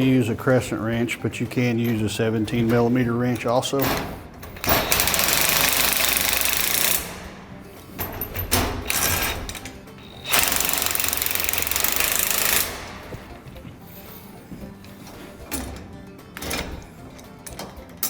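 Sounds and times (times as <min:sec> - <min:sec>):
impact wrench hammering: 0:03.8 - 0:13.5.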